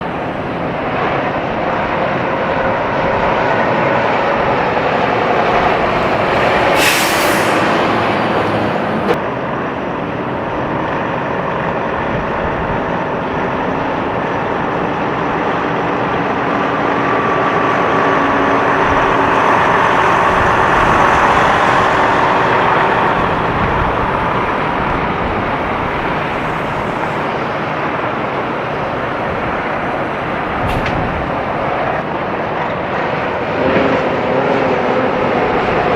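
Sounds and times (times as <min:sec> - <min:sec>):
heavy trucks passing: 0:00.0 - 0:35.9
air hiss: 0:06.6 - 0:07.8.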